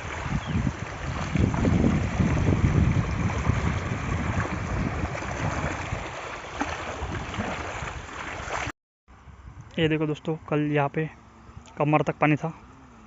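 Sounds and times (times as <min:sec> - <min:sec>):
rushing floodwater: 0:00.0 - 0:08.7
wind buffeting microphone: 0:00.0 - 0:10.1.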